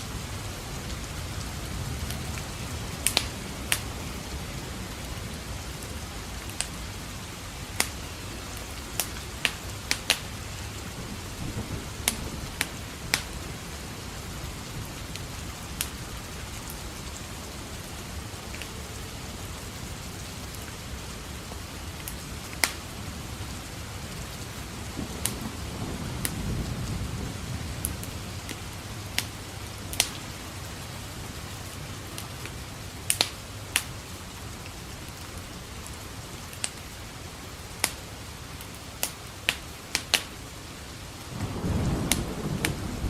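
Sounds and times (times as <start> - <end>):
steady rain: 0.0 - 43.0
wood fire crackling and popping: 2.0 - 4.5, 7.6 - 17.0, 21.9 - 23.0, 24.7 - 31.4, 32.0 - 34.0, 36.5 - 37.0, 37.6 - 40.4, 41.2 - 42.8.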